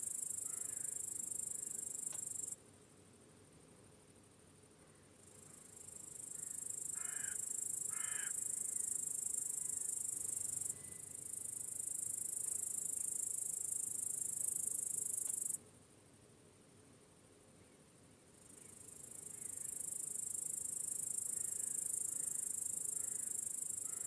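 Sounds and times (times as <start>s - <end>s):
crickets trilling: 0.0s - 2.6s, 5.1s - 15.6s, 18.5s - 24.0s.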